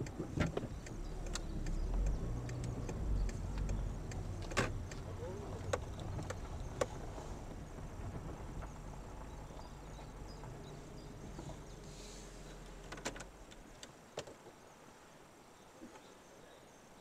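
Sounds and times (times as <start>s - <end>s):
sharp clicks: 0.0s - 7.0s
car engine idling: 0.0s - 13.7s.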